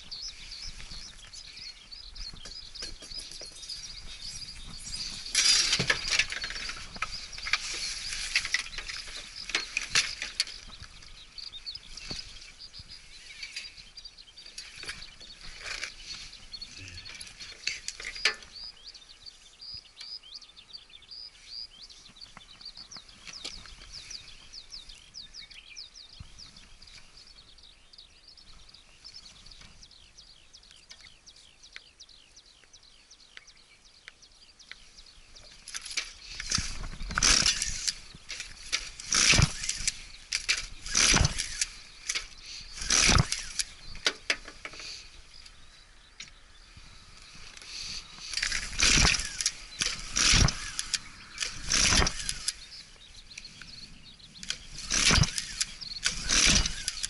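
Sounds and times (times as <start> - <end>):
birds chirping: 0.0 - 57.0
handling clicks and rustling: 2.2 - 12.4, 14.4 - 18.6, 35.4 - 45.6, 47.3 - 52.7.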